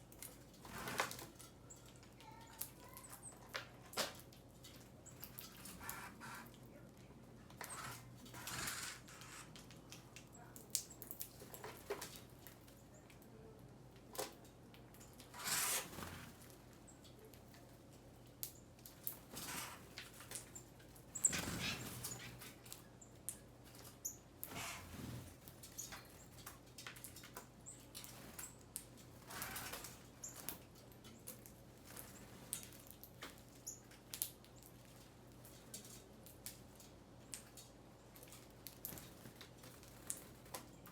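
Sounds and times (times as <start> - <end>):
birds pecking and rustling: 0.0 - 40.9
wings fluttering: 0.1 - 6.6, 7.5 - 10.0, 15.1 - 16.8, 18.8 - 22.8, 23.7 - 36.0.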